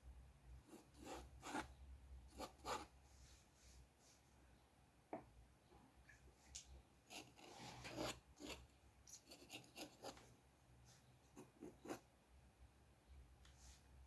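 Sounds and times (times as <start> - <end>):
drawing tool scratching paper: 0.7 - 1.7, 2.4 - 2.9, 7.1 - 8.6, 9.2 - 10.2.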